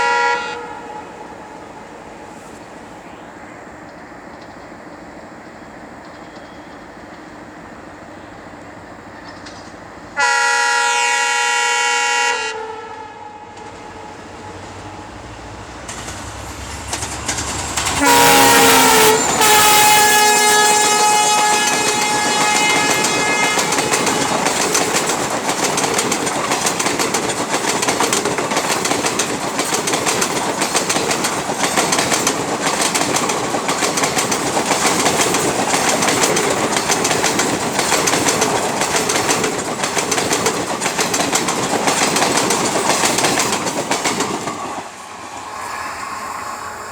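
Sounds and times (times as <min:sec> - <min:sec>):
train horn blasts: 0:00.0 - 0:02.6, 0:10.2 - 0:15.3, 0:17.8 - 0:24.8
train coaches running past: 0:00.0 - 0:46.9.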